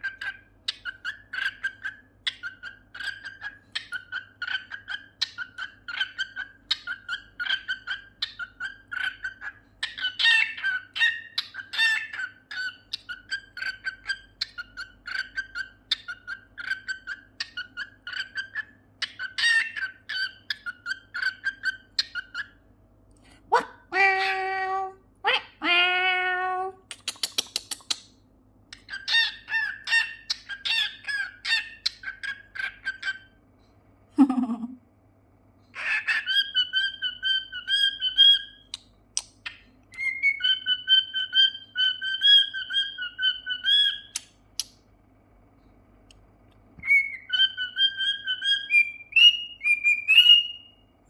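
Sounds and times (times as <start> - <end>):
cockatiel whistling and chattering: 0.0 - 22.6, 28.8 - 33.4, 35.7 - 44.7, 46.8 - 50.8.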